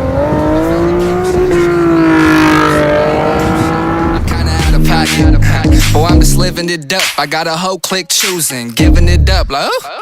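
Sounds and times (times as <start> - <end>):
car engine revving: 0.0 - 6.1.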